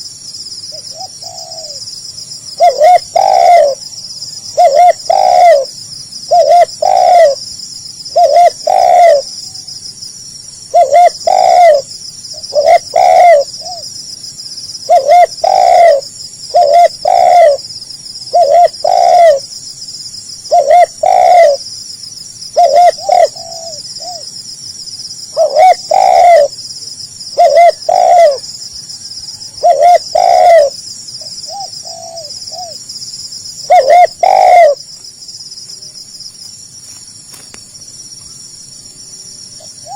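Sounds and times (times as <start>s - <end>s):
high-pitched insect buzz: 0.0s - 39.9s
dove cooing: 0.7s - 2.0s, 2.6s - 7.4s, 8.1s - 9.3s, 10.7s - 13.9s, 14.8s - 17.6s, 18.2s - 19.4s, 20.5s - 21.7s, 22.5s - 24.3s, 25.3s - 26.6s, 27.3s - 32.8s, 33.6s - 34.8s, 39.6s - 39.9s.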